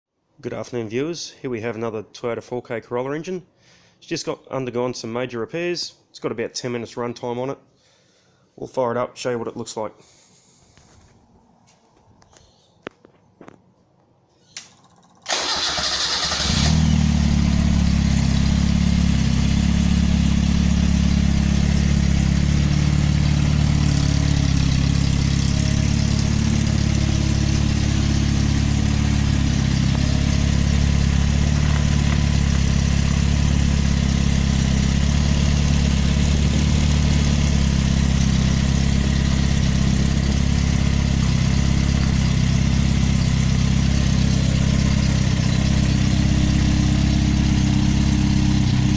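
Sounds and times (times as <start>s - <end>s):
engine cranking and starting: 14.8s - 19.0s, 23.5s - 34.1s
engine idling: 14.8s - 48.9s.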